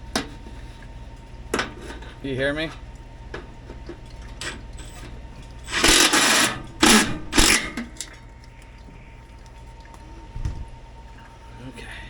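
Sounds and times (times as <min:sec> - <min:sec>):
cordless drill whirring: 0:05.7 - 0:07.6.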